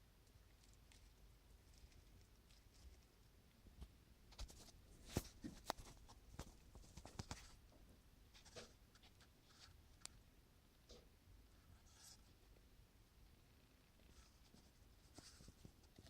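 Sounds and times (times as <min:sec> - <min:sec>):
faint clicks and light taps: 0:03.7 - 0:10.2.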